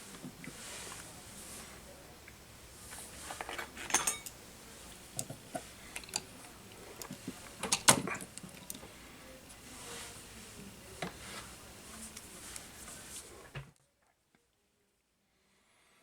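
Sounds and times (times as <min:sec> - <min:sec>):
tools clinking on workbench: 0:03.6 - 0:04.4.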